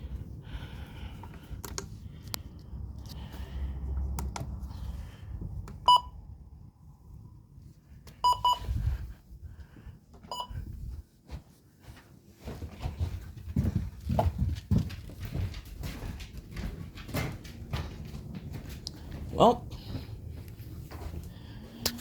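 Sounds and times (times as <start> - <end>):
electronic beeps: 8.2 - 8.6.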